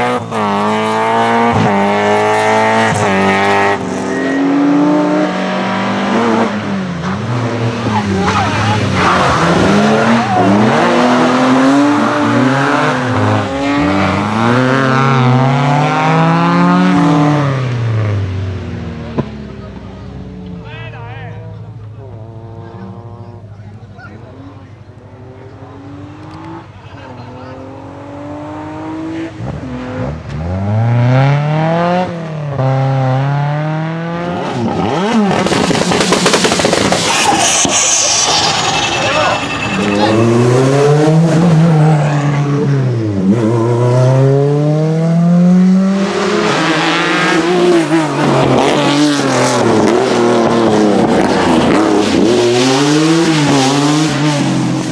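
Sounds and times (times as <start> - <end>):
car engine revving hard: 0.0 - 20.4, 21.4 - 23.6, 24.2 - 54.9
tyre squeal: 3.9 - 5.7, 6.5 - 16.1, 35.5 - 42.8.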